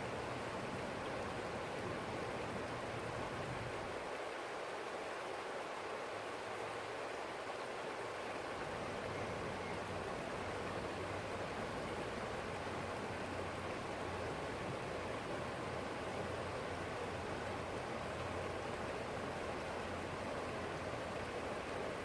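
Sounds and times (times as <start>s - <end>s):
stream flowing: 0.0s - 22.0s.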